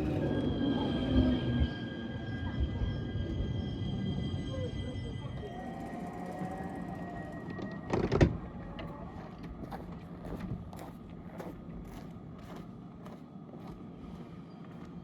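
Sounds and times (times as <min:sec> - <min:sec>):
train low hum: 0:00.0 - 0:15.0.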